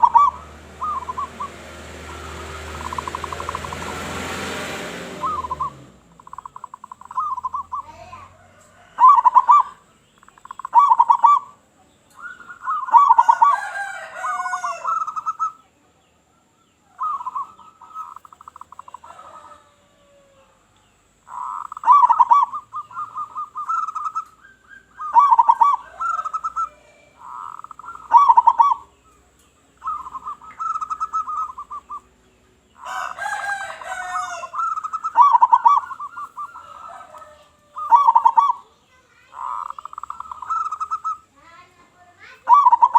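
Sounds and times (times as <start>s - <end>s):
bird twittering: 0.0s - 19.7s, 20.8s - 42.9s
doves cooing: 0.0s - 42.9s.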